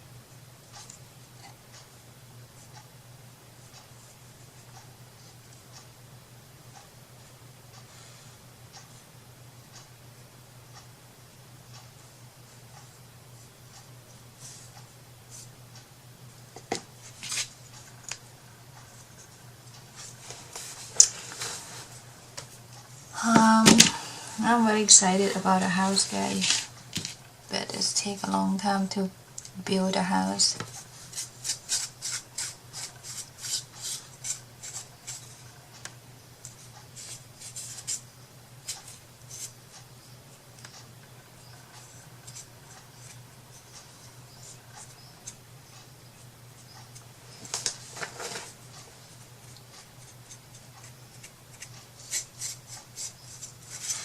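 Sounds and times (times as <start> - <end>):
low steady hum: 0.0 - 54.0
rubbing strokes on hard surface: 31.0 - 35.2, 51.2 - 54.0.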